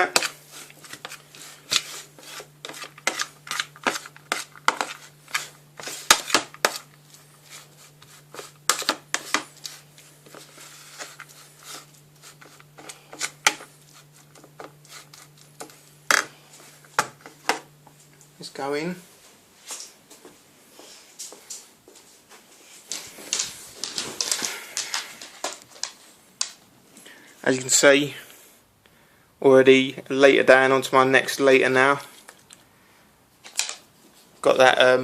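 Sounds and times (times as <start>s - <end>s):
utensil scraping a dish: 0.0s - 17.4s
faint steady hum: 0.0s - 35.0s.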